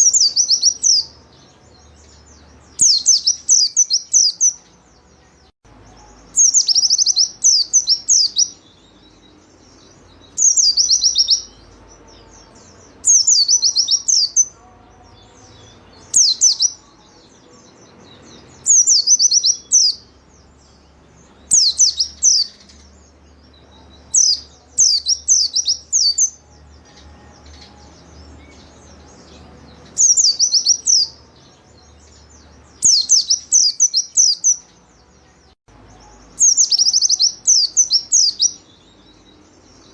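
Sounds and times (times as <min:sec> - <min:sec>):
small bird chattering song: 0:00.0 - 0:39.9.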